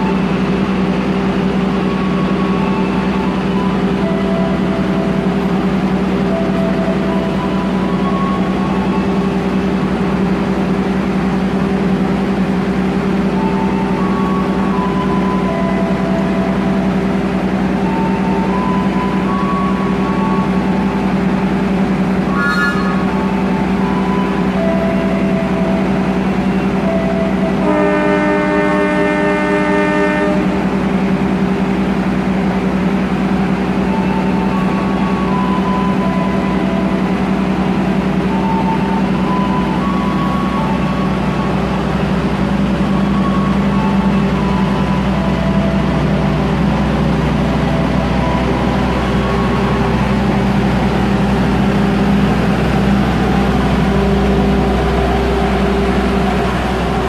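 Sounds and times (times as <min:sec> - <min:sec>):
diesel locomotive engine humming: 0:00.0 - 0:57.0
train horn blast: 0:22.2 - 0:25.8, 0:26.6 - 0:30.9.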